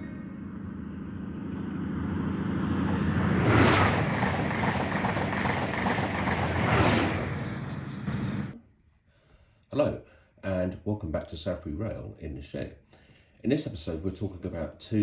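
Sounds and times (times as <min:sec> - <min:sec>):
train passing close by: 0:00.0 - 0:08.6.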